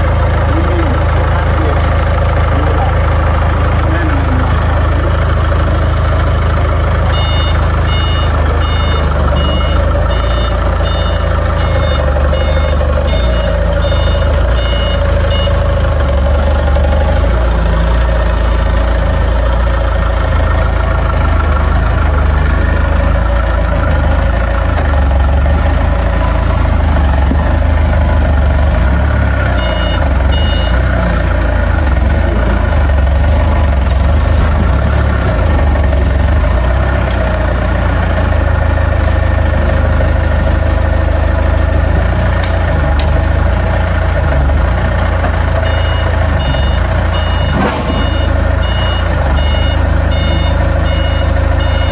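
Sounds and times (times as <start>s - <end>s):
heavy vehicle engine running: 0.0s - 51.9s
reversing alarm beeping: 0.2s - 19.8s, 24.9s - 31.4s, 38.6s - 42.0s, 42.6s - 44.8s, 45.4s - 51.9s.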